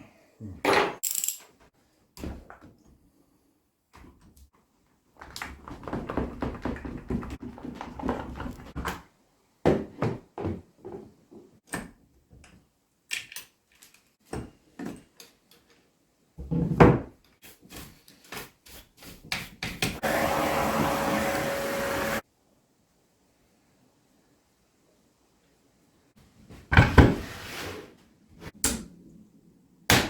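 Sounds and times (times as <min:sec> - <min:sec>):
machine running: 0:20.0 - 0:22.2.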